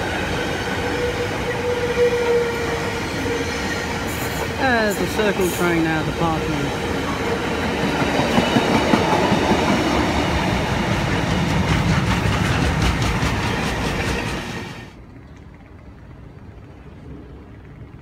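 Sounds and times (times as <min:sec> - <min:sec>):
freight train passing: 0:00.0 - 0:18.0.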